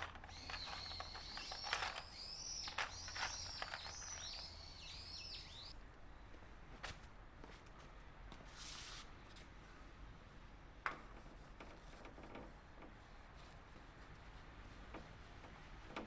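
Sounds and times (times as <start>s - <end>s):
faint handling noises: 0.0s - 4.6s.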